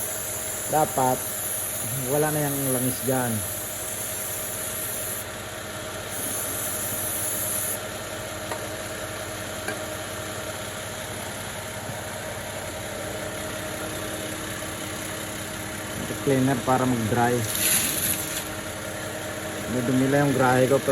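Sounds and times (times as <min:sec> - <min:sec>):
aerosol spray hissing: 0:00.0 - 0:05.2, 0:06.1 - 0:07.8, 0:17.4 - 0:18.5
car engine idling: 0:08.2 - 0:20.9.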